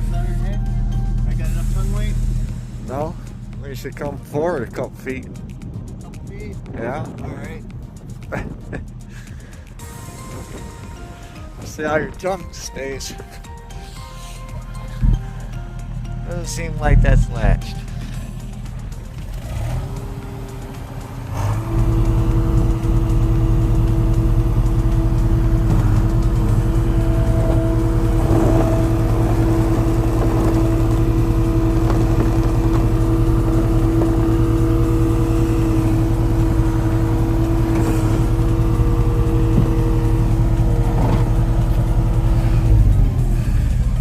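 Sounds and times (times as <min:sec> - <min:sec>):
motor vehicle engine drone: 0:00.0 - 0:44.0.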